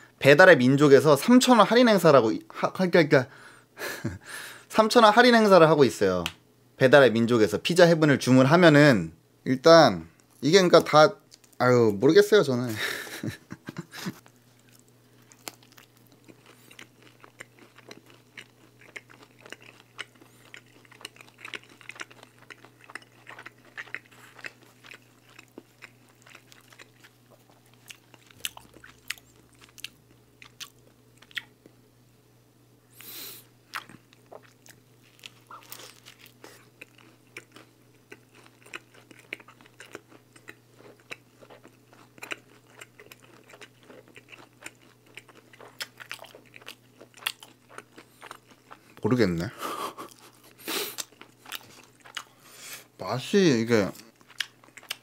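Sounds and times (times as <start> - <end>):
chewing crispy pizza: 10.1 - 11.6, 13.5 - 31.6, 33.7 - 55.0.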